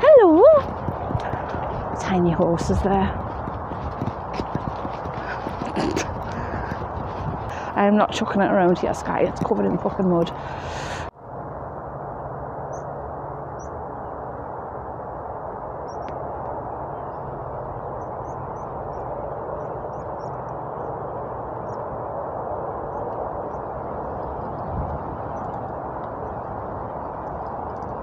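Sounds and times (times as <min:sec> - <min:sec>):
steady rushing noise: 0:00.0 - 0:28.0
small birds chirping: 0:00.3 - 0:07.8.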